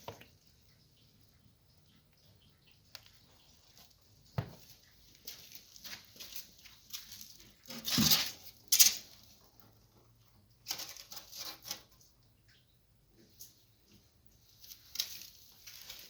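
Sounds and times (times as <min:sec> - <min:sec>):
crabs scratching and clattering: 0:02.9 - 0:12.2, 0:14.4 - 0:16.0.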